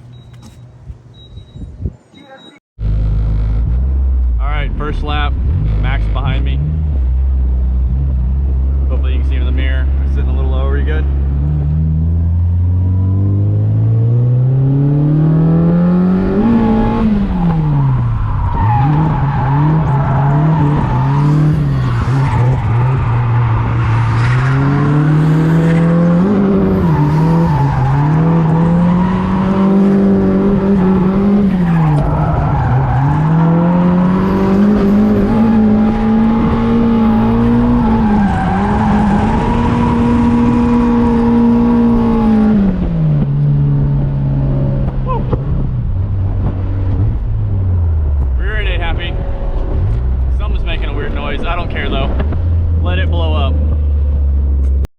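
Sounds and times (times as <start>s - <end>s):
car engine revving hard: 11.2s - 45.6s.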